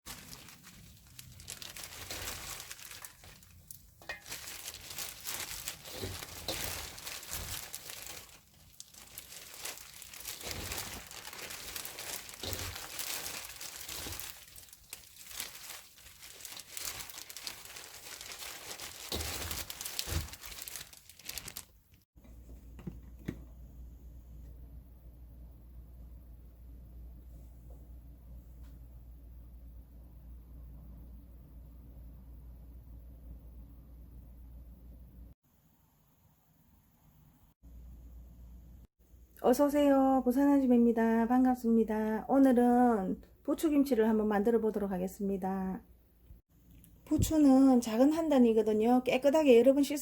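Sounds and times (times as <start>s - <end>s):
crinkling and crackling: 0.0s - 23.4s
quiet low hum: 0.1s - 39.4s.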